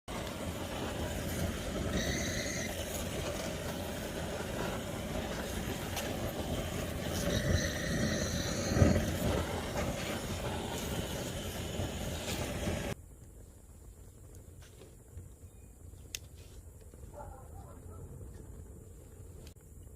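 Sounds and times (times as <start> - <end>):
campfire crackling: 0.1 - 15.2
high-pitched whistling tones: 1.9 - 3.1, 7.1 - 9.4.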